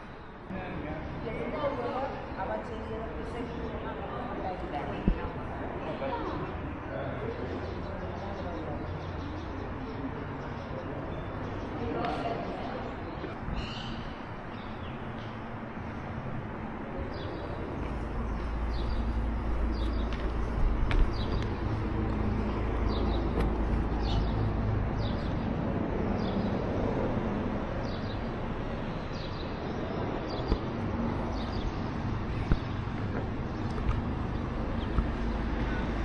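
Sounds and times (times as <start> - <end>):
small birds chirping: 1.0 - 16.0, 17.0 - 26.8, 27.8 - 36.0.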